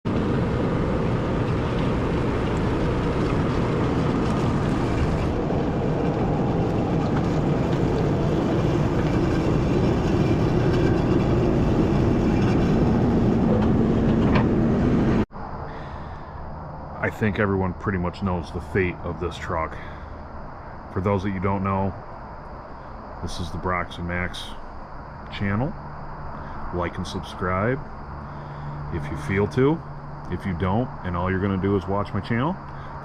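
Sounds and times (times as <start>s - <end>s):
heavy vehicle engine rumbling: 0.1s - 25.0s.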